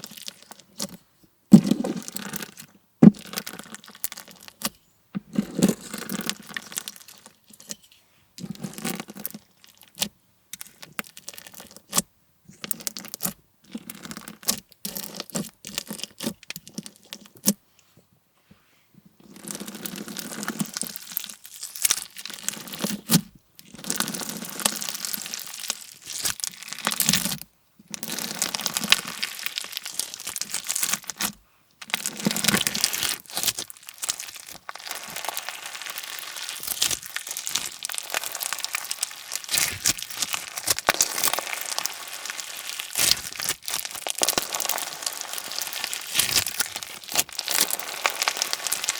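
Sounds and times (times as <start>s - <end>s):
bead slime crackling and popping: 19.7s - 23.1s, 23.7s - 48.9s.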